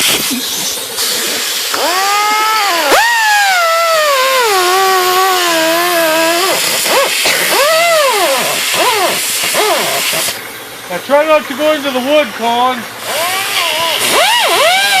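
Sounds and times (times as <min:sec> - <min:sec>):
power tool motor whining: 0:01.0 - 0:10.4, 0:13.0 - 0:15.0.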